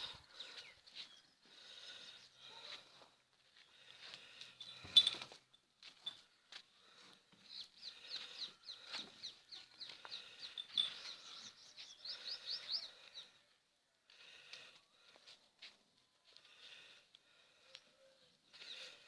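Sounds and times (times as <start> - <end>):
small birds chirping: 0.0 - 3.0, 6.0 - 13.6, 17.5 - 19.0.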